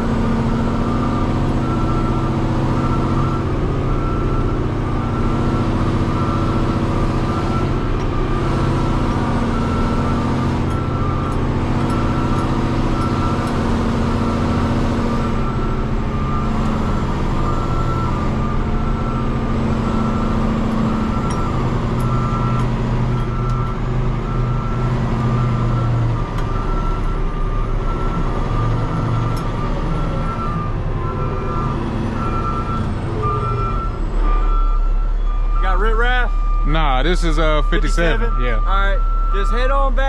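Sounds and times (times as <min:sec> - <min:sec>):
truck diesel engine running: 0:00.0 - 0:40.0
reverse alarm beeping: 0:00.4 - 0:40.0.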